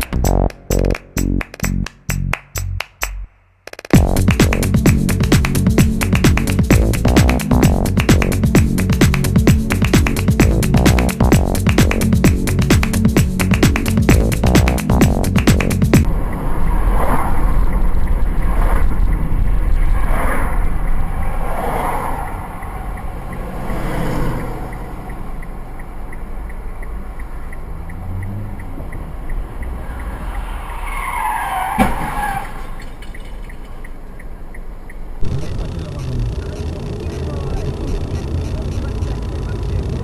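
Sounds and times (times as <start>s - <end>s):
car road and engine noise: 3.9s - 40.0s
tyre squeals: 30.4s - 32.8s.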